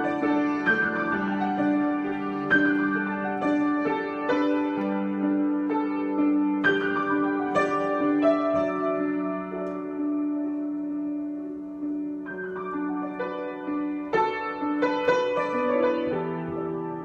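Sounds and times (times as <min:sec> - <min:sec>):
slow solo piano: 0:00.0 - 0:17.0.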